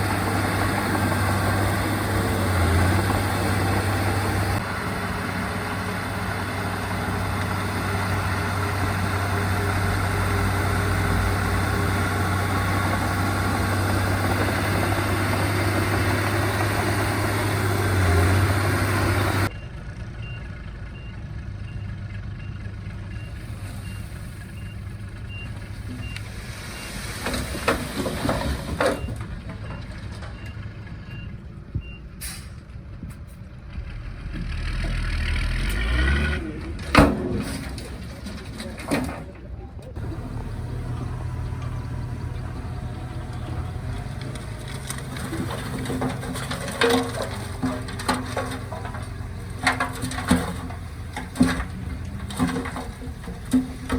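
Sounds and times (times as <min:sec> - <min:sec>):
diesel machinery humming: 0:00.0 - 0:53.9
metal clanks: 0:36.6 - 0:53.9.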